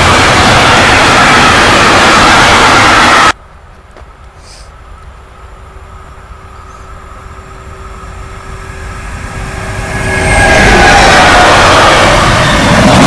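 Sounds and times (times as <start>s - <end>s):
freight train approaching: 0.0s - 13.0s
steady tone: 5.4s - 13.0s.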